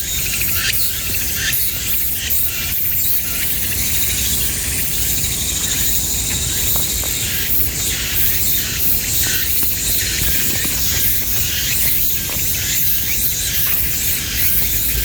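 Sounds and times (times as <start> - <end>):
insect chorus shrilling: 0.0 - 15.0.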